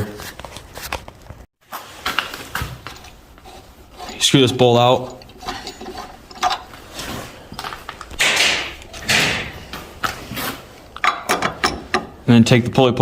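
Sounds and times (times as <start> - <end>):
metal scraping strokes: 1.8 - 10.7.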